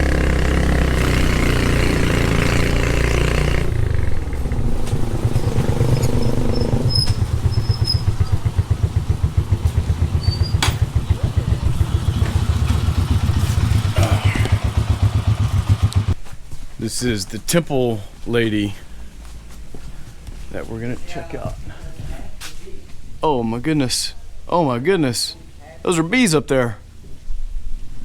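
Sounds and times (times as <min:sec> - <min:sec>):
motorcycle engine idling: 0:00.0 - 0:16.2.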